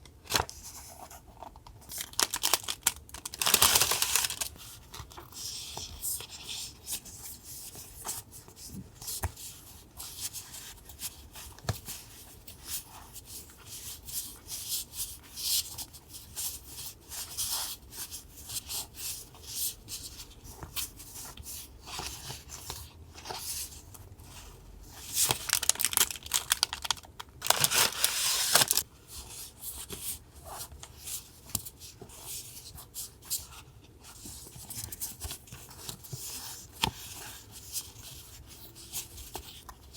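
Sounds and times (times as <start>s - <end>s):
paper rustling: 1.9s - 6.4s, 21.8s - 31.5s
paper tearing: 27.4s - 28.8s.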